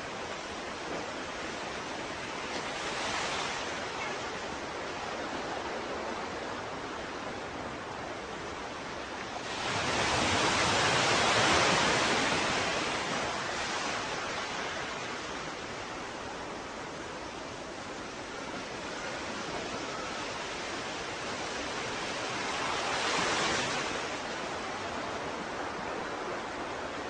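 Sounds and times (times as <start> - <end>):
ocean surf washing: 0.0 - 27.0.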